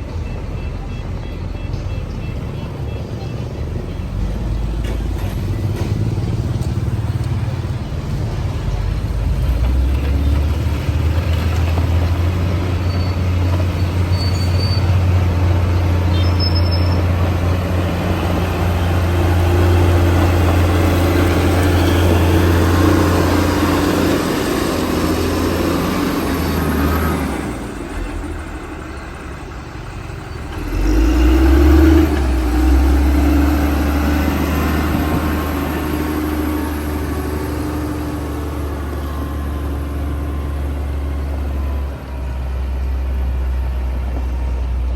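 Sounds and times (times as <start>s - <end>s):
bulldozer diesel engine running: 0.0s - 44.9s.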